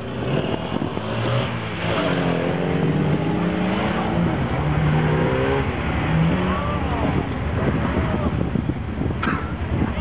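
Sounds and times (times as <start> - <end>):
car engine revving hard: 0.0 - 7.1.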